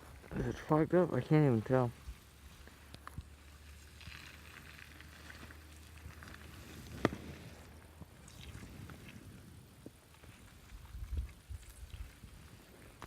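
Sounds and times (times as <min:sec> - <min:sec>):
skis sliding over snow: 0:01.8 - 0:07.8, 0:08.6 - 0:13.0.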